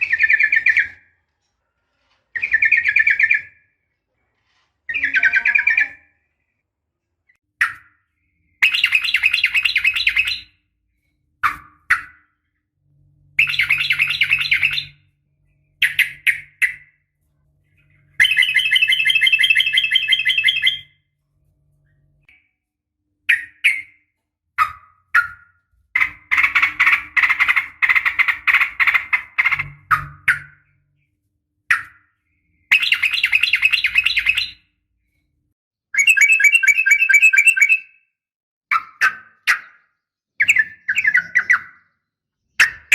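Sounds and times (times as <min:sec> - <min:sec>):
bird chattering trills: 0:13.4 - 0:15.0, 0:18.2 - 0:20.9.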